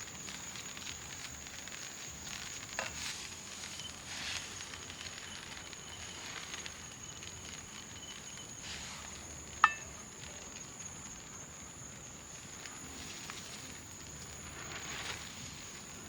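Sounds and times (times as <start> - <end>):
rice sizzling and crackling: 0.0 - 16.0
steady high hiss: 0.0 - 16.0
sharp clink: 9.6 - 10.0.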